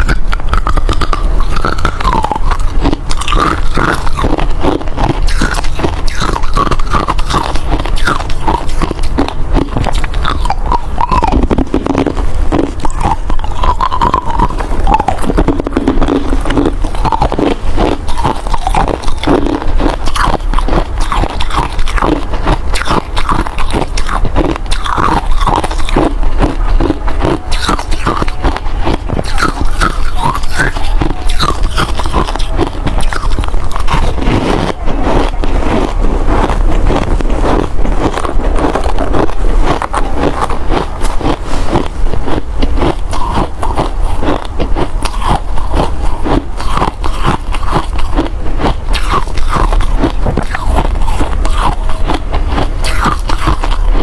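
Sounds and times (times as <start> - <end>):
person crunching ice: 0.0 - 54.0.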